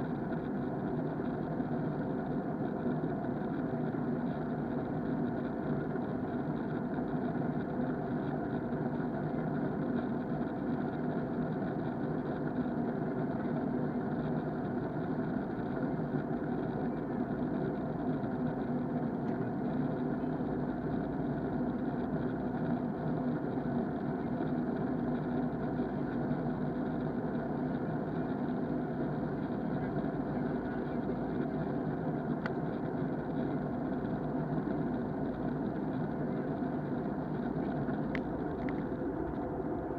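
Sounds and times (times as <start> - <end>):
muffled airplane cabin drone: 0.0 - 39.9.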